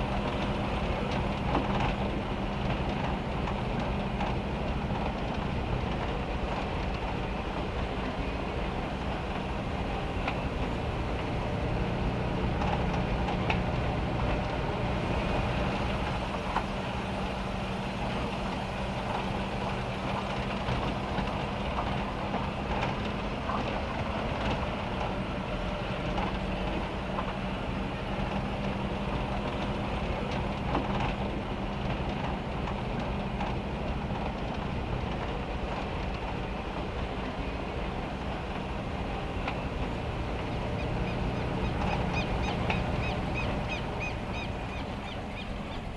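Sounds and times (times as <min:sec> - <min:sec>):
rain drumming on metal roof: 0:09.1 - 0:43.8.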